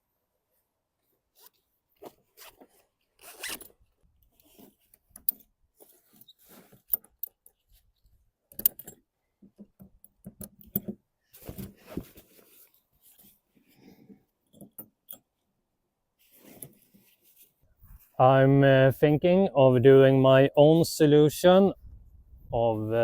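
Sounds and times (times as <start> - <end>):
straps and clips rustling and clicking: 1.3 - 13.4, 16.2 - 18.2.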